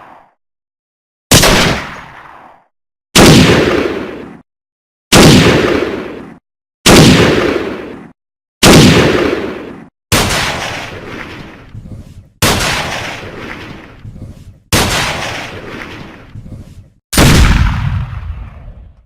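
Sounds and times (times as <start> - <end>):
gunshots with echo: 1.3 - 4.4, 5.1 - 11.7, 12.4 - 14.0, 14.7 - 16.3, 17.2 - 19.0.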